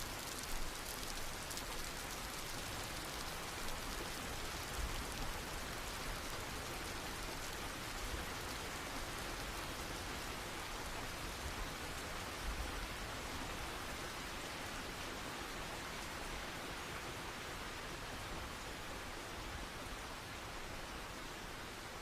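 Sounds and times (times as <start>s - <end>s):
raindrop ticks: 0.0s - 6.0s
steady rain falling: 0.0s - 22.0s.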